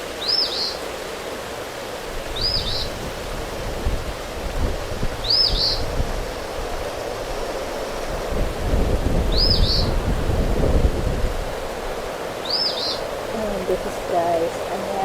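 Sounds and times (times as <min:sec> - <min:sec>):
steady rain: 0:00.0 - 0:15.0
wind rumble on microphone: 0:02.0 - 0:15.0
small bird chirping: 0:09.3 - 0:09.9, 0:12.4 - 0:13.0.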